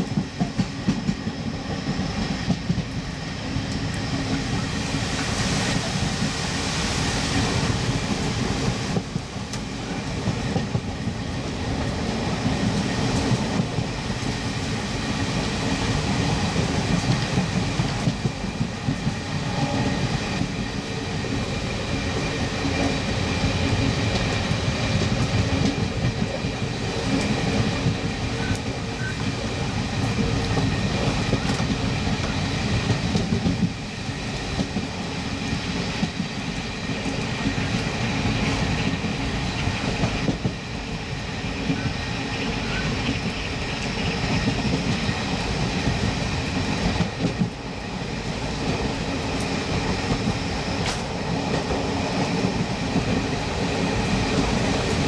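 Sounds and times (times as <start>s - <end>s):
light rail clicks: 0.0s - 1.2s, 8.9s - 11.0s, 23.6s - 29.4s, 30.0s - 33.8s, 48.6s - 53.6s
train wheels rumbling on track: 0.0s - 55.0s.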